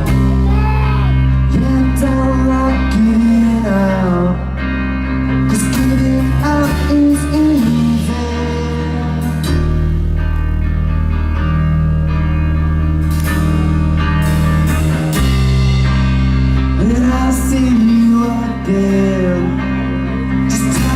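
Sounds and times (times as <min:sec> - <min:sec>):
person singing: 0:00.0 - 0:10.0, 0:16.6 - 0:20.9
electric guitar chords: 0:00.0 - 0:20.9
steady bass line: 0:00.0 - 0:20.9.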